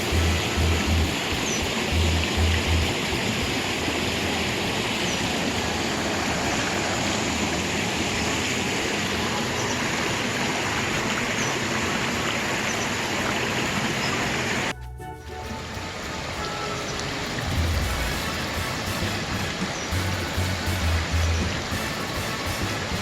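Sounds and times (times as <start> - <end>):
stream rushing over rocks: 0.0 - 14.7, 15.3 - 23.0
low rumbles: 17.2 - 21.7.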